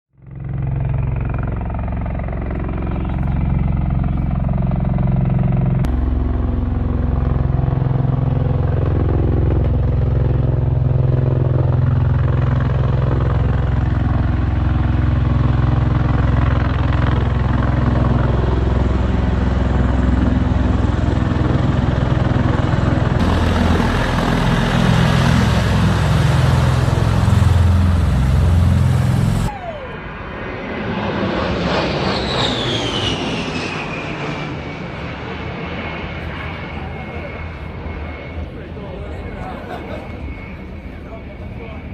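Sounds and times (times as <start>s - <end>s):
heavy engine running loud: 0.2s - 29.8s
aircraft turbine whine passing: 0.2s - 41.9s.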